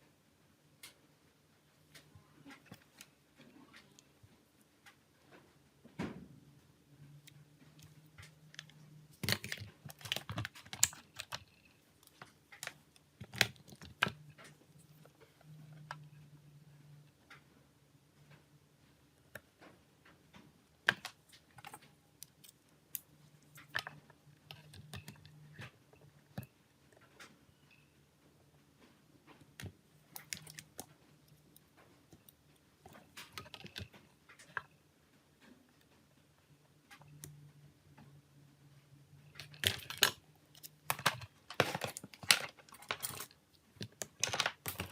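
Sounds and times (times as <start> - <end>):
plastic and metal parts clicking: 7.2 - 16.2, 19.3 - 27.4, 29.3 - 34.8, 39.3 - 44.9.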